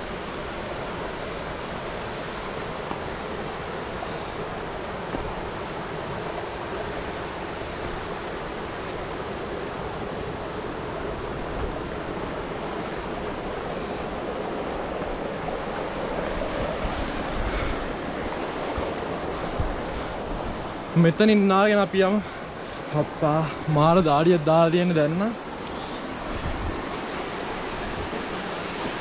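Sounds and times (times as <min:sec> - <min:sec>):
water flowing over rocks: 0:00.2 - 0:20.9.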